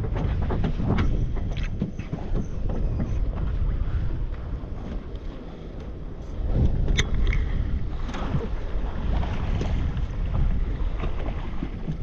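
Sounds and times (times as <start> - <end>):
boat on water: 0.0 - 12.0
wind on microphone: 0.0 - 12.0.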